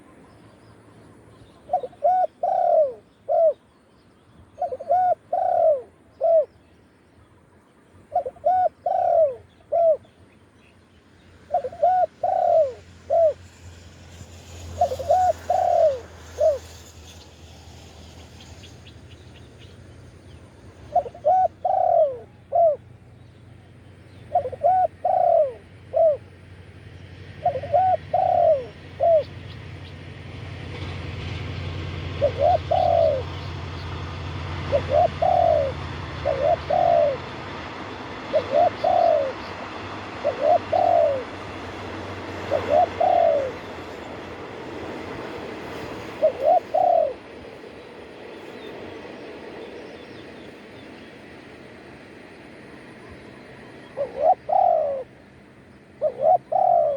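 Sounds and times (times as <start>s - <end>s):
dove cooing: 1.7s - 3.6s, 4.6s - 6.6s, 8.1s - 10.1s, 11.5s - 13.4s, 14.8s - 16.6s, 20.8s - 22.9s, 24.3s - 26.4s, 27.4s - 29.4s, 32.0s - 33.6s, 34.4s - 44.0s, 45.6s - 47.4s, 53.8s - 55.2s, 56.0s - 56.9s.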